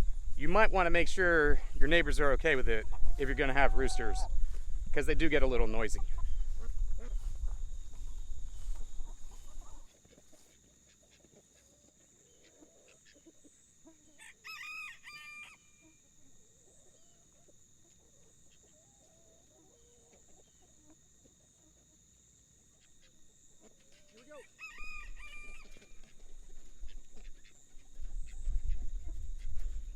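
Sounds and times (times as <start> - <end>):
rooster crowing: 14.2 - 15.7, 24.3 - 25.8.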